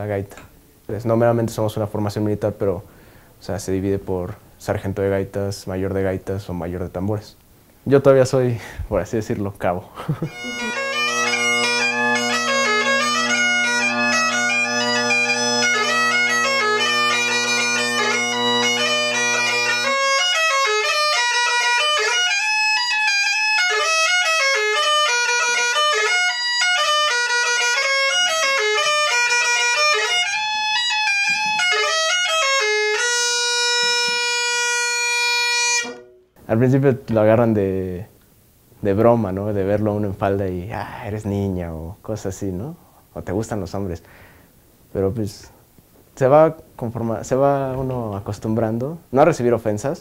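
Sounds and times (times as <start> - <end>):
bagpipe drone: 10.2 - 36.3
bagpipe chanter melody: 10.2 - 36.4.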